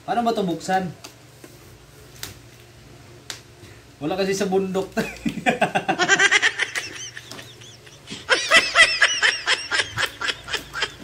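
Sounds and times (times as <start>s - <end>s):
man laughing: 5.0s - 11.0s.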